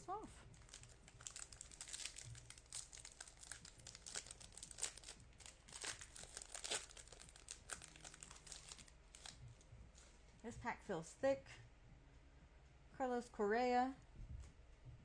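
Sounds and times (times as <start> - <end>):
wrapper crinkling and tearing: 0.1 - 9.4.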